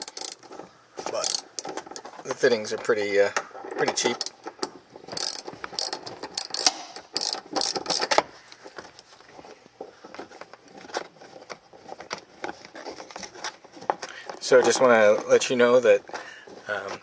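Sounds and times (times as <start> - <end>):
ratchet wrench clicking: 0.0 - 0.4, 1.2 - 1.7, 5.2 - 8.2.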